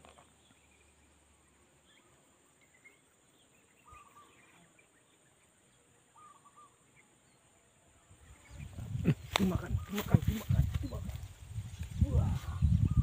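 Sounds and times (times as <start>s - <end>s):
bird chirps: 0.0s - 7.6s
whistled bird calls: 3.8s - 4.5s, 6.2s - 6.8s.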